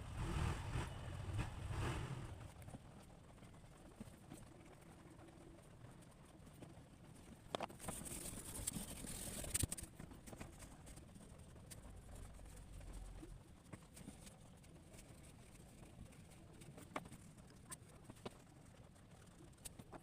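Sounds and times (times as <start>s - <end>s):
faint taps and ticks: 9.6s - 20.0s.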